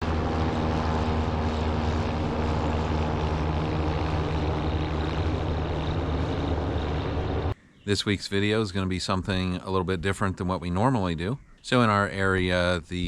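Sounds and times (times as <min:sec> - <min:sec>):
helicopter rotor and engine drone: 0:00.0 - 0:07.6.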